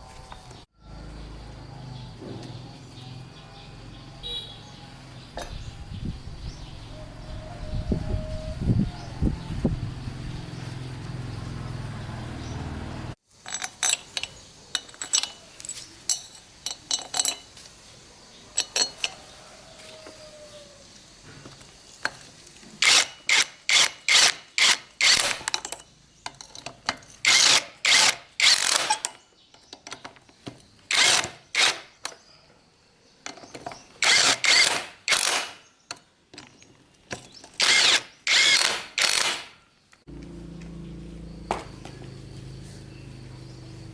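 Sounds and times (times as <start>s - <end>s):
hand tool striking metal parts: 13.4s - 17.7s, 18.6s - 19.2s, 22.0s - 32.2s, 33.3s - 39.6s.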